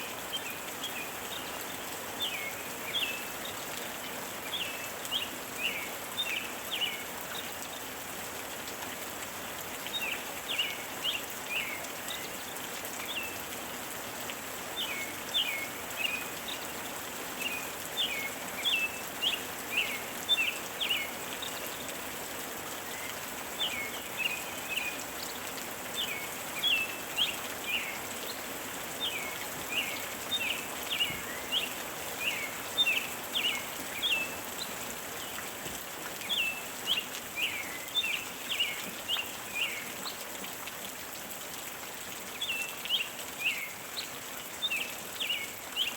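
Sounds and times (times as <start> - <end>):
gentle rain: 0.0 - 45.9.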